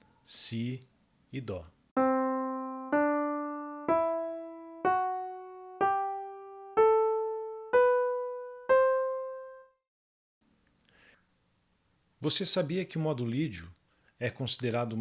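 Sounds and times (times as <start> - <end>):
piano playing ascending scale: 2.0 - 9.8.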